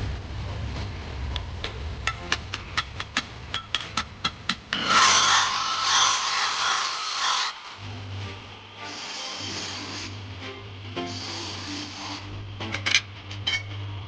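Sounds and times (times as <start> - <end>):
loud rasping rub: 8.8 - 12.4.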